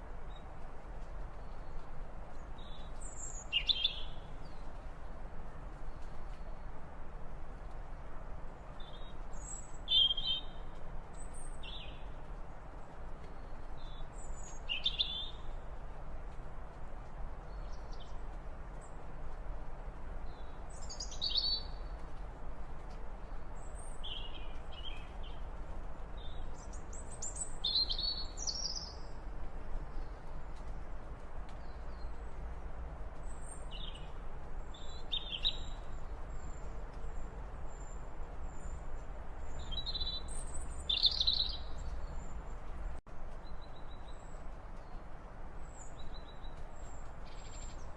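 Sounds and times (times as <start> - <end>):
birds chirping: 33.1 - 45.1.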